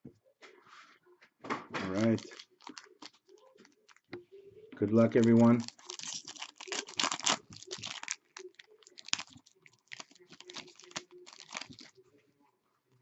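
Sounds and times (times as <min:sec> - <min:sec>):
foil wrapper crinkling and tearing: 0:01.8 - 0:04.0, 0:05.0 - 0:11.9
cards rustling: 0:01.8 - 0:04.1, 0:04.9 - 0:11.9.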